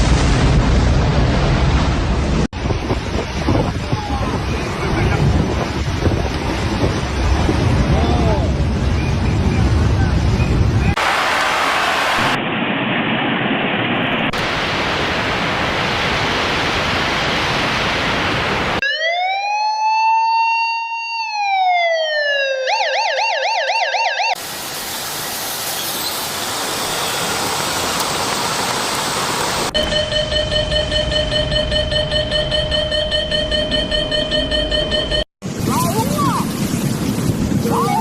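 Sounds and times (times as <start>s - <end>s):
steady rushing noise: 0.0s - 18.8s, 35.4s - 38.0s
electronic siren wailing: 18.8s - 24.4s, 29.8s - 35.3s.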